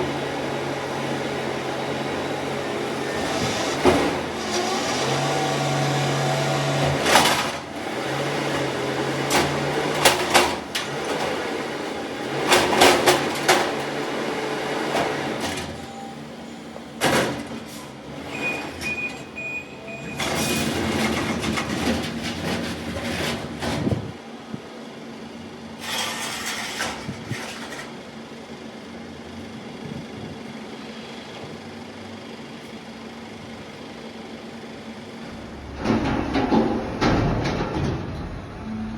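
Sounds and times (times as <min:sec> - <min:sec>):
garbage truck engine running: 0:00.0 - 0:38.9
bins clattering and banging: 0:03.1 - 0:15.9, 0:17.0 - 0:19.3, 0:20.0 - 0:24.2, 0:35.3 - 0:38.9.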